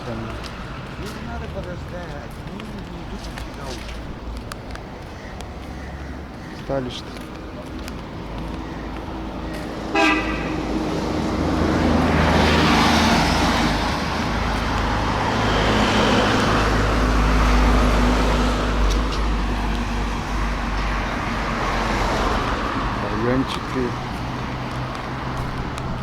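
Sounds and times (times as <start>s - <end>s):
vehicles passing by: 0.0s - 26.0s
car horn toot: 9.9s - 10.6s.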